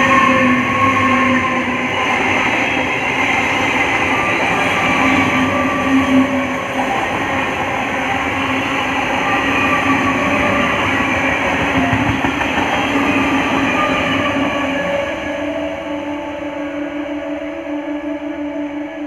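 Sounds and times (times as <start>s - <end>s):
train wheels clattering on rails: 9.6s - 14.4s.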